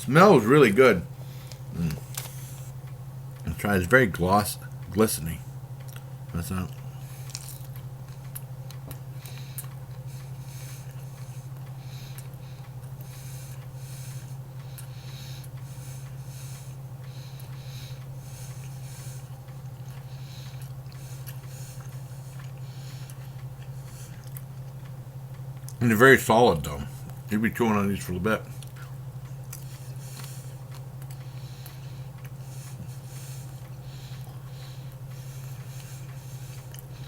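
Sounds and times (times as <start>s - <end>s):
person chewing meat snack: 1.4s - 2.7s, 5.8s - 6.1s, 6.7s - 25.8s, 28.5s - 37.0s.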